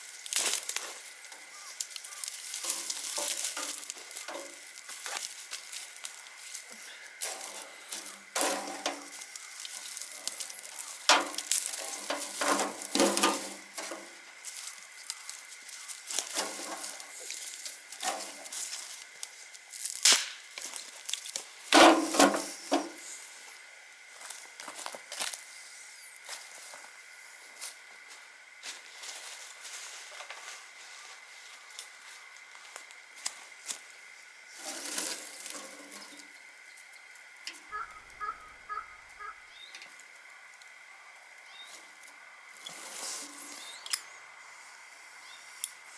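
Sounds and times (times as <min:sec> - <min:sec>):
wood fire crackling: 0:00.0 - 0:22.4.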